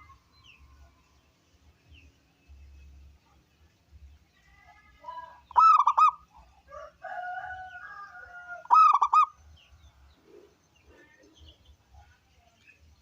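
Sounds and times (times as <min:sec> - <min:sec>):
soft drawn-out bird calls: 0:00.0 - 0:01.4, 0:04.2 - 0:12.8
dove cooing: 0:05.5 - 0:06.2, 0:08.6 - 0:09.3.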